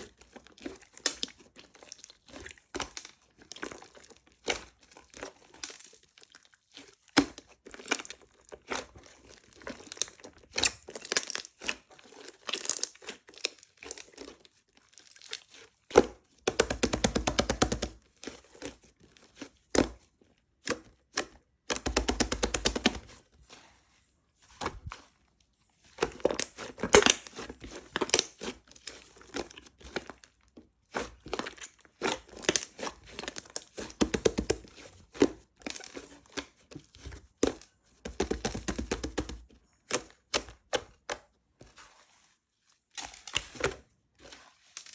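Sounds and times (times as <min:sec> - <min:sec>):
slime squishing and popping: 0:26.0 - 0:30.2.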